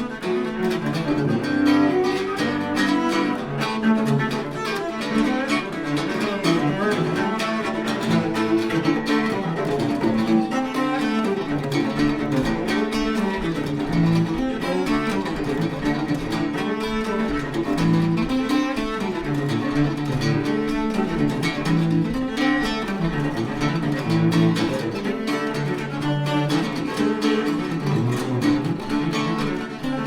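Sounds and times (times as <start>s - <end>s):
bowed cello: 0.0s - 30.0s
plucked acoustic guitar: 0.0s - 30.0s.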